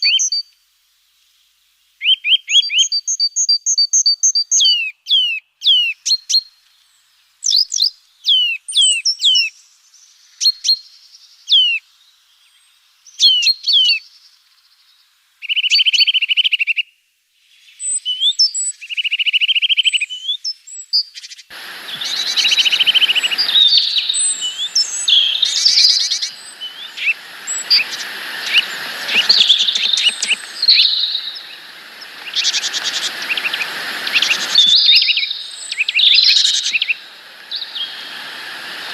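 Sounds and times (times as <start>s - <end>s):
songbirds calling: 21.2s - 38.9s
steady rushing noise: 21.5s - 38.9s.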